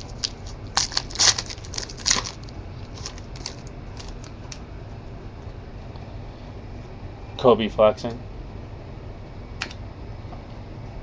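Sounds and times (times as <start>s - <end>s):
cards and packaging rustling: 0.0s - 4.6s.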